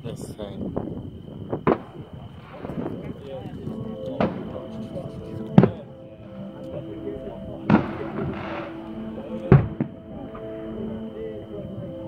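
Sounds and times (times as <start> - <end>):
firework shells booming: 1.4 - 10.7
firework crackle: 1.5 - 6.7, 7.6 - 10.5
music: 2.4 - 12.0.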